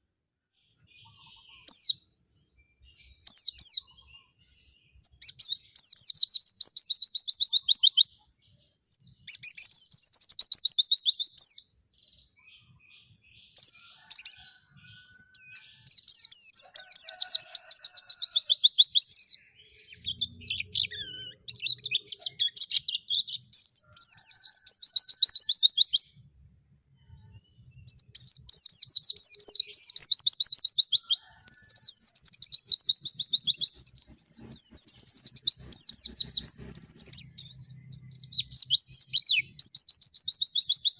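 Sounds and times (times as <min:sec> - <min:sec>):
bird chattering trills: 0:27.4 - 0:40.6.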